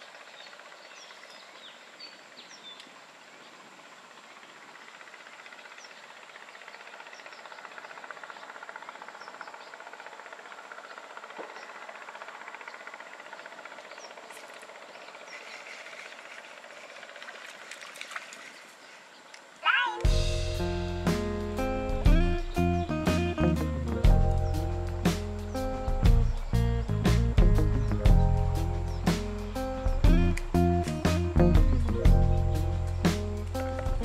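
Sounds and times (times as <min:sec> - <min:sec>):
steady hiss-like background: 0:18.4 - 0:34.0
bird chirps: 0:18.8 - 0:34.0.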